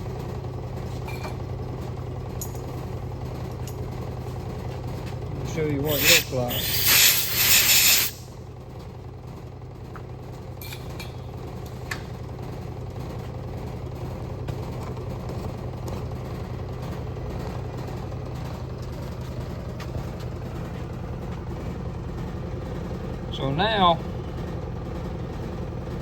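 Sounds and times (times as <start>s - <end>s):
low machine hum: 0.0s - 26.0s
compressed air hiss: 5.9s - 8.3s.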